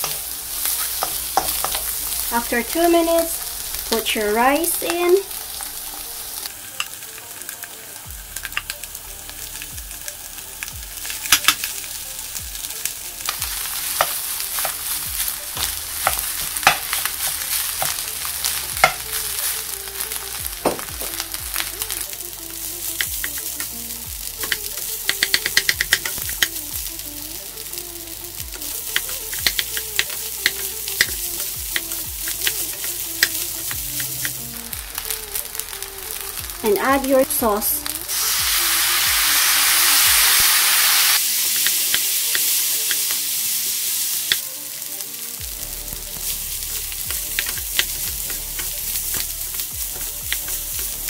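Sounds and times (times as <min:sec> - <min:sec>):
spatulas clacking against a wok: 0:00.0 - 0:02.3, 0:13.2 - 0:21.7, 0:22.8 - 0:23.8, 0:24.4 - 0:26.6, 0:28.5 - 0:34.5, 0:47.1 - 0:51.0
rice sizzling in a wok: 0:00.0 - 0:51.0.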